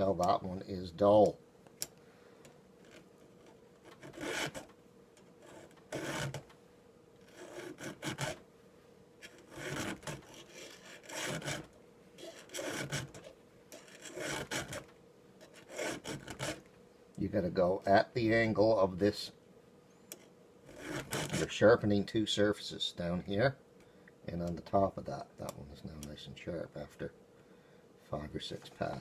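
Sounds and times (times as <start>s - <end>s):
file rasping on chainsaw chain: 3.8s - 4.7s, 5.4s - 6.4s, 7.2s - 8.4s, 9.2s - 16.6s, 20.7s - 21.6s.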